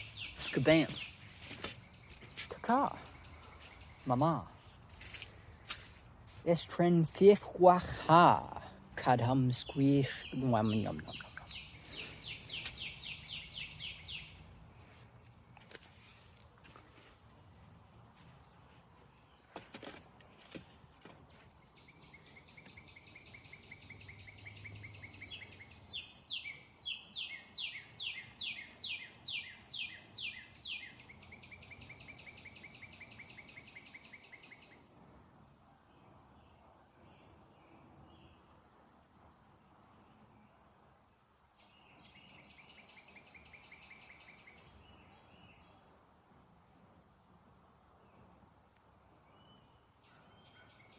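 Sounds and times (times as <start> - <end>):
songbird trilling: 0.0 - 4.7, 7.6 - 14.5, 21.8 - 34.6
crickets droning: 0.0 - 50.9.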